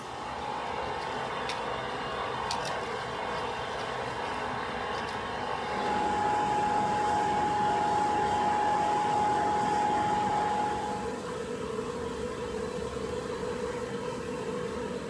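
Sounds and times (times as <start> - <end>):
machine running with rushing noise: 0.0 - 15.0
steady whine: 5.6 - 15.0.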